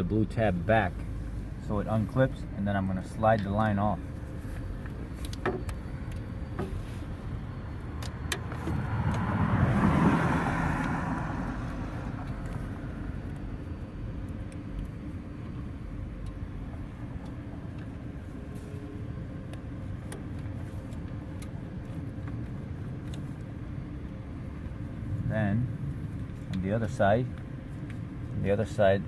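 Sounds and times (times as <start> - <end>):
steady low hum: 0.0 - 9.8, 10.9 - 29.0
car passing: 7.7 - 13.8.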